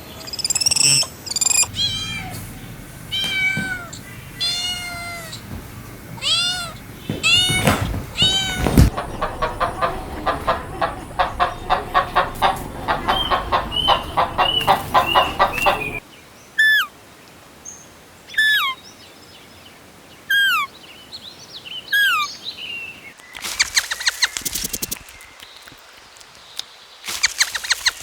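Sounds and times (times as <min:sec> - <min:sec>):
falling whistled bird calls: 0:00.2 - 0:16.0, 0:21.7 - 0:25.7
chickens clucking: 0:01.6 - 0:16.0.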